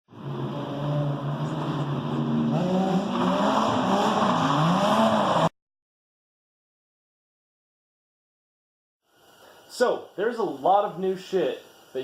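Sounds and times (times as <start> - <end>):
car engine revving: 0.1 - 5.5.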